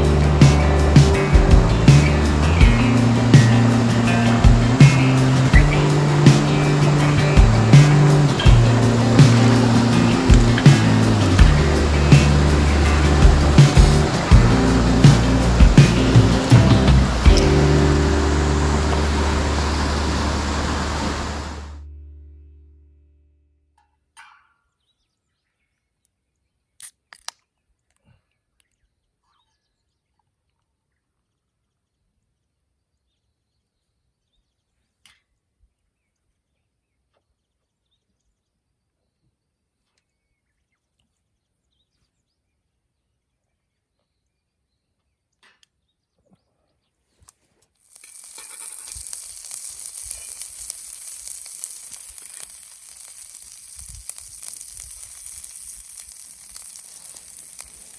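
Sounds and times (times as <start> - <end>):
food sizzling in a hot pan: 0.0 - 21.7, 47.8 - 57.9.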